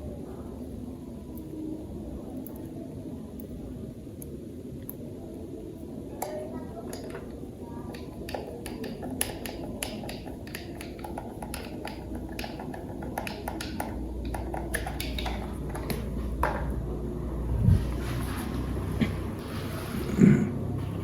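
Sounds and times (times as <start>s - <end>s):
plastic toy parts clicking: 7.9s - 16.0s.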